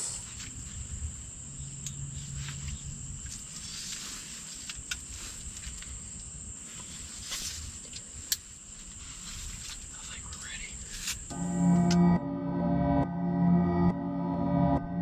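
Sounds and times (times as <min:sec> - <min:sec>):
insects trilling: 0:00.0 - 0:11.3.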